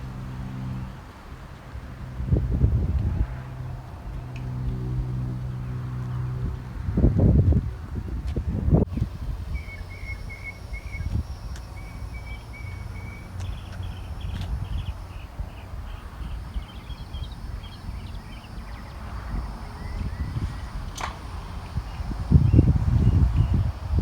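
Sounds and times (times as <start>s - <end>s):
wind rumble on microphone: 0.0s - 24.0s
bird chirping high notes: 9.5s - 20.9s.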